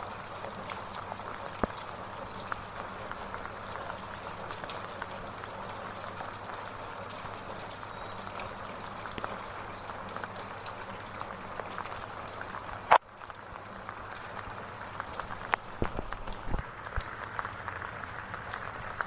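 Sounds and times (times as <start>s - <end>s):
light rain pattering: 0.0s - 19.0s.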